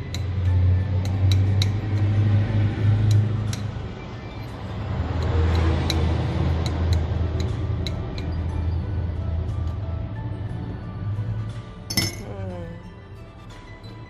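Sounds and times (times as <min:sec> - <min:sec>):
spoon clinking against cup: 0:11.9 - 0:12.4.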